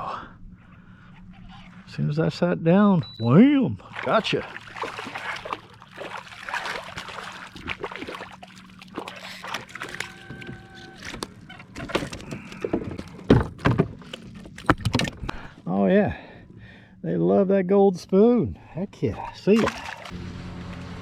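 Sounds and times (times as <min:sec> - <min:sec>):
water sloshing: 0:03.1 - 0:15.6, 0:18.6 - 0:20.2
knocks and rattles on a kayak: 0:04.0 - 0:15.6.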